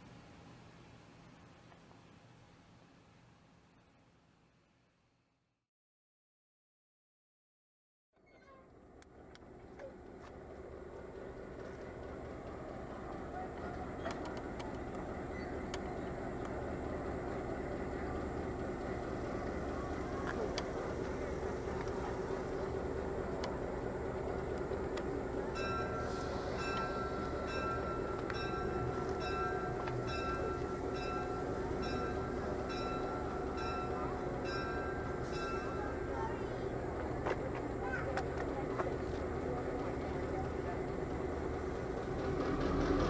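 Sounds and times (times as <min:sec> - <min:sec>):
train rumble: 0:08.2 - 0:43.0
high-pitched ringing: 0:25.4 - 0:36.3.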